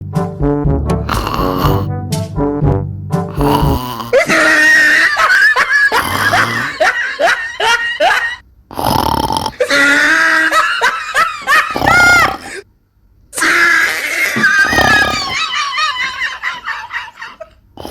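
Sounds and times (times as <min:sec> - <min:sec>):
wheezy laugh-like vocal noises: 0:03.3 - 0:08.4, 0:09.4 - 0:12.6, 0:13.6 - 0:17.9.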